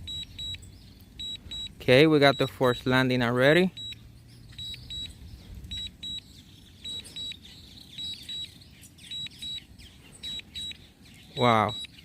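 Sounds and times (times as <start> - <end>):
high double warning beeps: 0.0 - 12.0
faint short chirps: 3.8 - 7.4.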